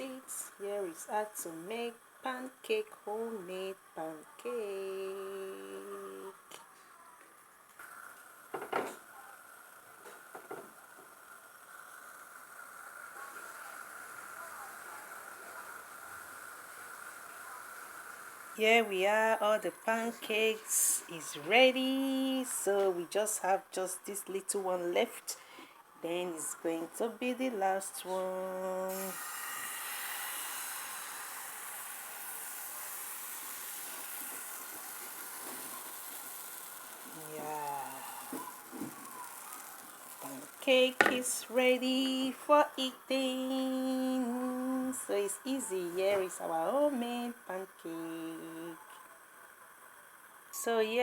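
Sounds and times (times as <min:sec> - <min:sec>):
pancake sizzling in a pan: 0:07.8 - 0:23.4, 0:27.2 - 0:48.8.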